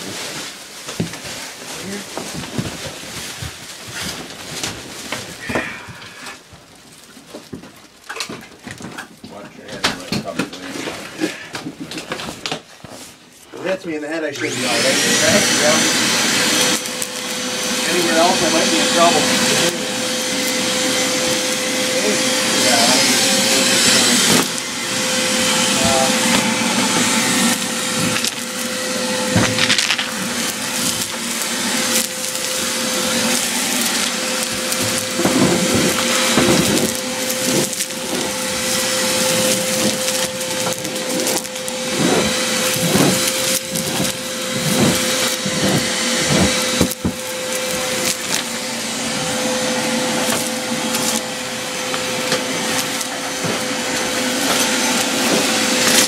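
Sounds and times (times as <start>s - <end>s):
machine whining and humming: 13.7s - 56.0s.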